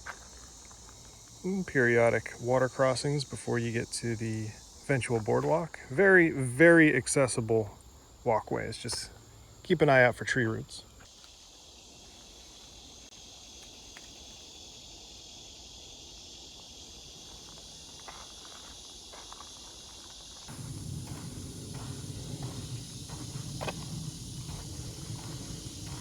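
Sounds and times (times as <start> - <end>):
knocks and scuffs on trail: 0.0 - 1.4, 17.2 - 26.0
insects chirring: 0.0 - 26.0
footsteps on a trail: 17.2 - 26.0.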